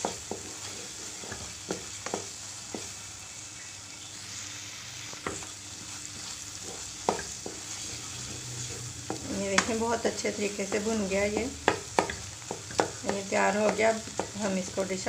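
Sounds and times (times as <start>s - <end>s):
meat sizzling in hot oil: 0.0s - 15.0s
wooden spatula knocking on pan: 1.3s - 2.9s, 7.0s - 7.7s, 9.0s - 15.0s.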